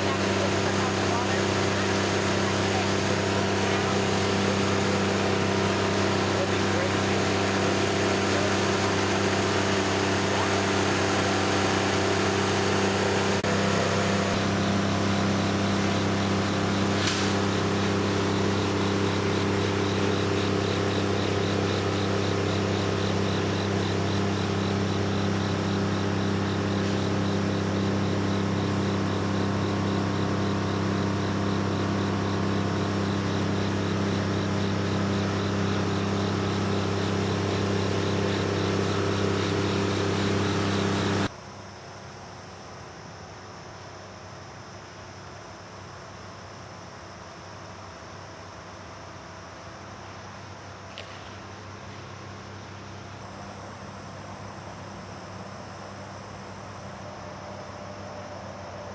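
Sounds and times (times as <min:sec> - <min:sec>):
engine drone with hiss: 0:00.0 - 0:58.9.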